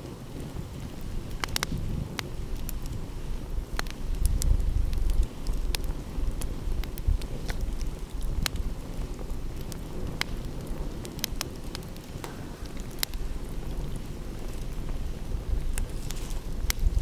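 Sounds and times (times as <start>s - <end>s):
wood fire crackling: 0.0s - 17.0s
steady low rush: 12.2s - 15.3s.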